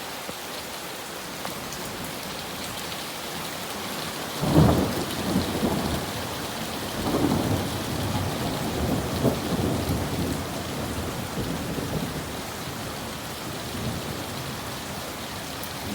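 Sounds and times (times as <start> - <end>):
rain pouring: 0.0 - 15.9
thunder rumbling: 4.4 - 14.7.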